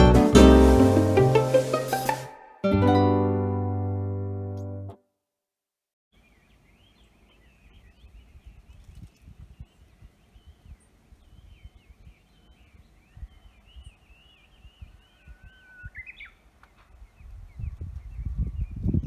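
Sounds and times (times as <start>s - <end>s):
songbirds twittering: 6.2s - 19.0s.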